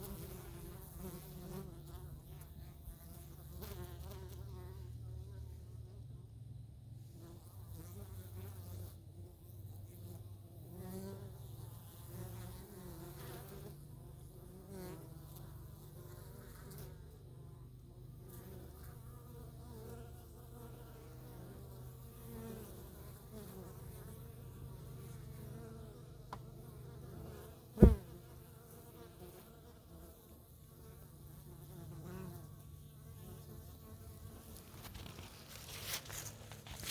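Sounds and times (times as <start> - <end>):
bees buzzing: 19.8 - 30.1.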